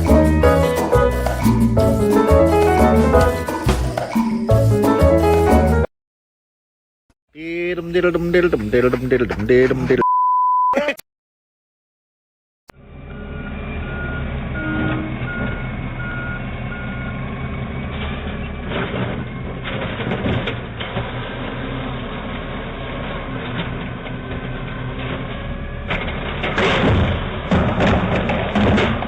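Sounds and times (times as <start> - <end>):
heavy vehicle engine running: 12.7 - 29.0
reversing alarm beeping: 13.0 - 17.2.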